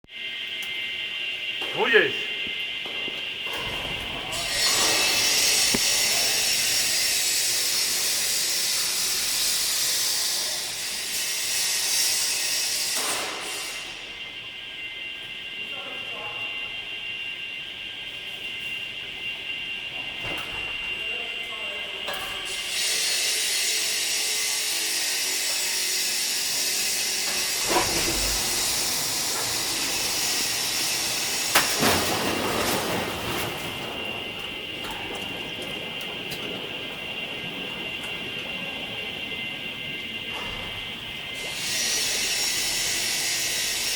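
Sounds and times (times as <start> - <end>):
furnace hissing: 0.1 - 43.9
water quench hissing: 4.3 - 13.9, 22.5 - 31.8, 41.3 - 43.9.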